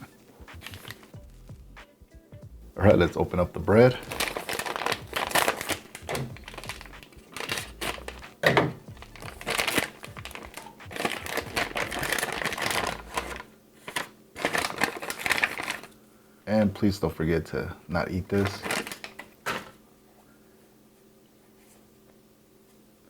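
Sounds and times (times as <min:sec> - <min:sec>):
packaging torn and crinkling: 0:00.6 - 0:01.1, 0:03.9 - 0:16.0, 0:18.3 - 0:19.8.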